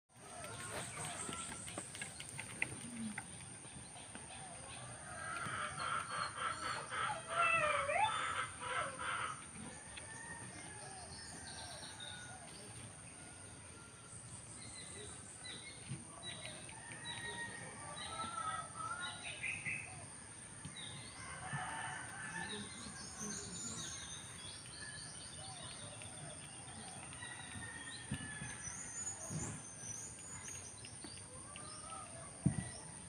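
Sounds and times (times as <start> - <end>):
birds chirping and calling: 0.3 - 12.8, 14.3 - 33.0.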